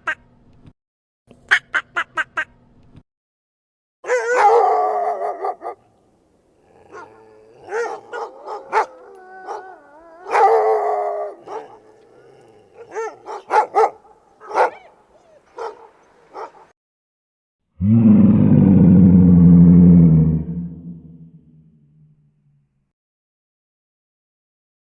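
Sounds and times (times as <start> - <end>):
dog howling: 4.0 - 5.8, 6.6 - 13.9
dog barking: 4.0 - 5.9, 6.9 - 12.0, 12.7 - 16.7.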